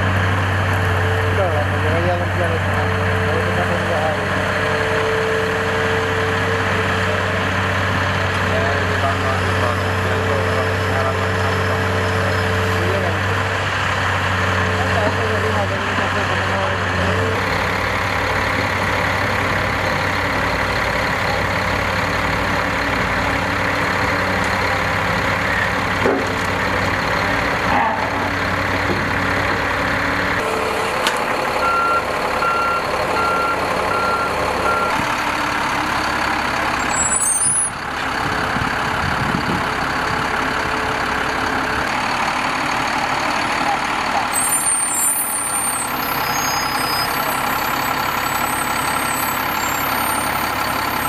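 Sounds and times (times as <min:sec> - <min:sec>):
heavy machine engine running: 0:00.0 - 0:51.0
backup alarm beeping: 0:31.6 - 0:35.0
high squeal: 0:36.8 - 0:37.8, 0:44.3 - 0:51.0.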